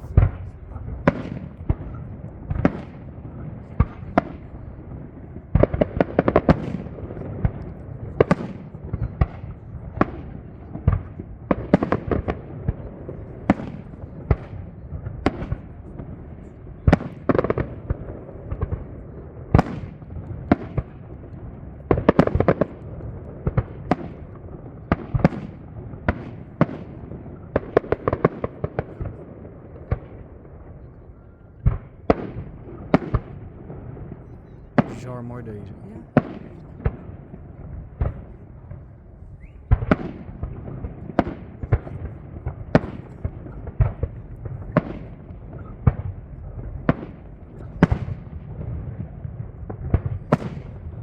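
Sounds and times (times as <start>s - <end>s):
fireworks bursting and crackling: 0.0s - 16.2s, 34.8s - 38.8s.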